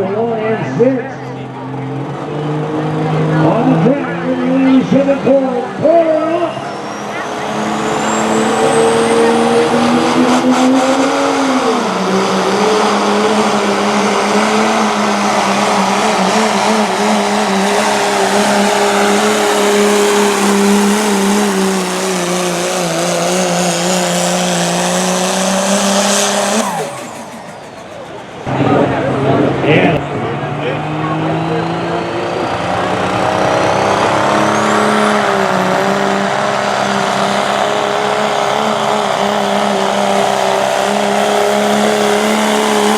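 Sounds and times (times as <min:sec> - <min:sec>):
diesel truck engine at full throttle: 0:00.0 - 0:42.9
turbo whistle: 0:26.5 - 0:28.4.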